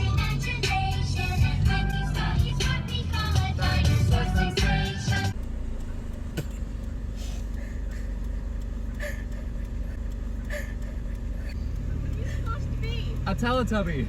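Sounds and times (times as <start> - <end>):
music with singing: 0.0 - 5.4
car running from inside cabin: 0.0 - 14.0.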